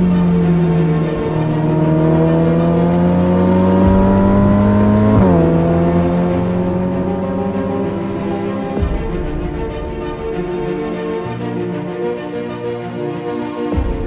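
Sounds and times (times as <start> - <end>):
car engine held at raised revs: 0.0 - 9.0.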